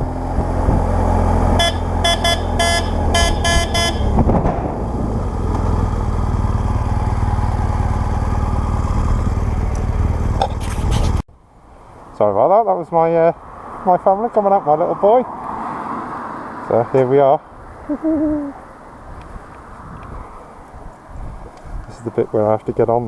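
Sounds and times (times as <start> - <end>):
motorcycle engine droning: 0.0 - 11.1
vehicle horn short toots: 1.6 - 4.2.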